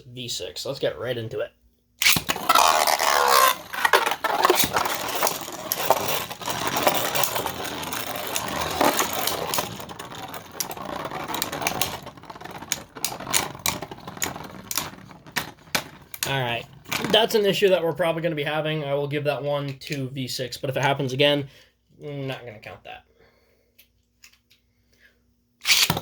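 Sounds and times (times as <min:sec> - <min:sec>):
spinning top launch whir: 0:02.0 - 0:16.3, 0:25.6 - 0:26.0
spinning tops clattering: 0:02.0 - 0:17.0.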